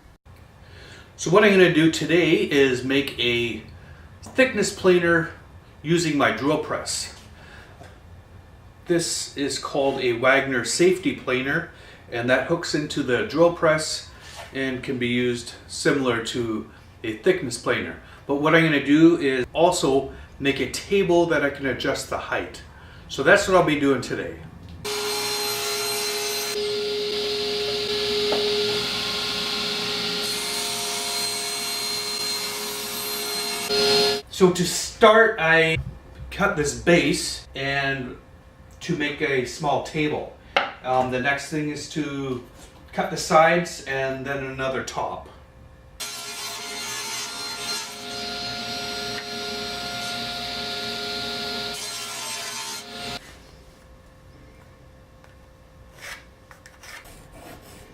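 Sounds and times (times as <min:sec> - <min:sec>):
power tool cutting wood: 0:24.9 - 0:34.2, 0:46.0 - 0:53.2.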